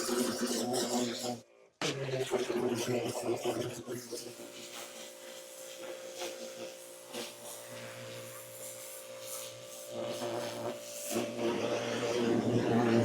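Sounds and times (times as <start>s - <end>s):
pressure washer motor whine: 7.6s - 13.0s.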